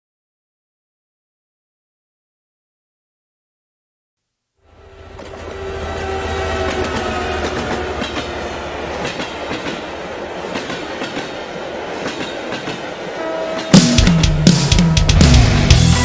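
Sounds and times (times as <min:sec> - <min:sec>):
train rumbling on rails: 0:04.7 - 0:16.0
wheels clacking over rail joints: 0:05.0 - 0:14.8.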